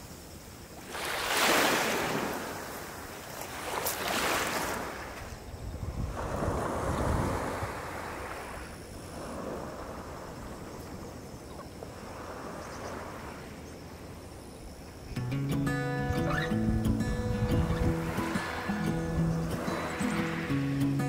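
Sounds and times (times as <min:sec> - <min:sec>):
sea waves washing ashore: 0:00.0 - 0:21.0
wind: 0:00.0 - 0:21.0
music: 0:15.2 - 0:21.0.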